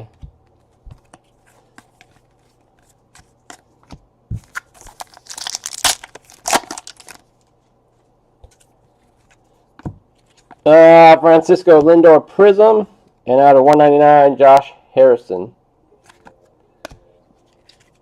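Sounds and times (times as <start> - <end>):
foil pack tearing and crinkling: 4.6 - 7.2.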